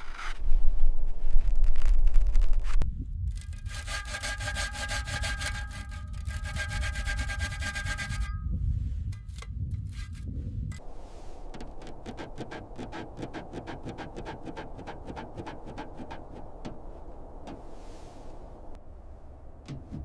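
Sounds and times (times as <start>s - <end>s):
low rumble: 0.0s - 3.8s, 8.3s - 20.0s
rapid rasping strokes: 3.4s - 8.4s, 9.2s - 18.7s.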